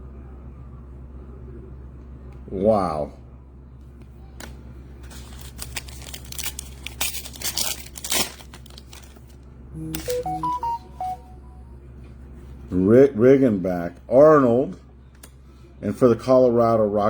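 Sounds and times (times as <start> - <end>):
card pack wrappers tearing and crinkling: 5.0 - 10.1
electronic jingle of beeping tones: 9.8 - 11.8.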